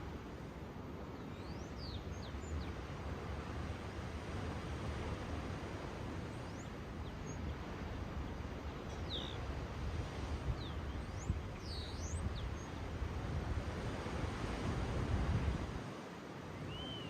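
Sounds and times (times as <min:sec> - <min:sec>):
ocean waves washing: 0:00.0 - 0:17.0.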